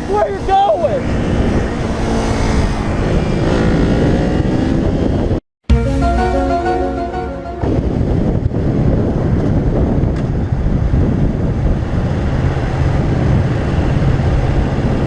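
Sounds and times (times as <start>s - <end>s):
wind roaring over microphone: 0.0s - 5.4s, 7.6s - 15.0s
road and engine noise: 0.0s - 15.0s
music: 5.7s - 8.1s.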